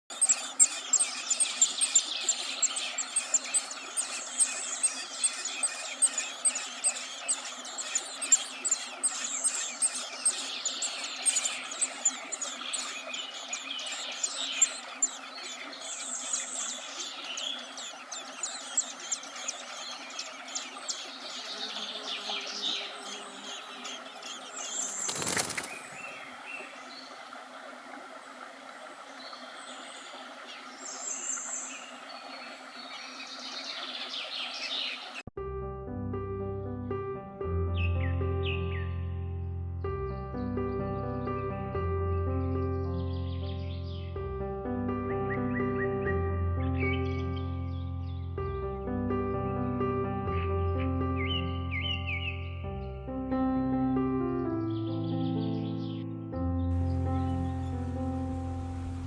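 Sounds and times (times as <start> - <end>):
birds chirping: 0.0 - 27.4, 28.2 - 35.3, 56.8 - 59.0.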